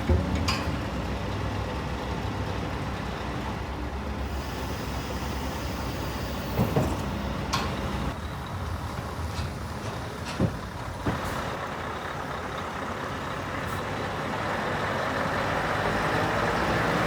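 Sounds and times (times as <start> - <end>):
clunks: 0.0 - 1.4, 6.4 - 8.2, 8.9 - 11.6
diesel truck engine running: 0.0 - 17.0.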